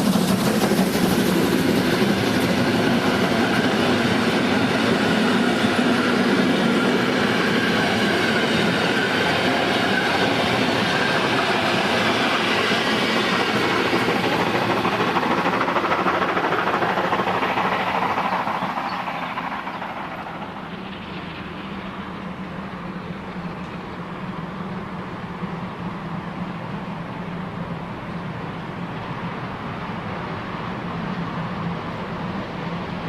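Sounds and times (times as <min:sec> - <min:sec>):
train wheels clattering over joints: 0:00.0 - 0:22.6.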